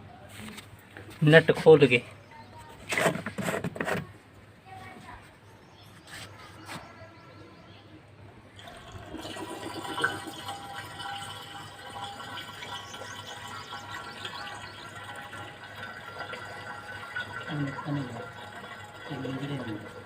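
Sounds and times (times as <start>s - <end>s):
fuel pouring and splashing: 8.6s - 20.0s.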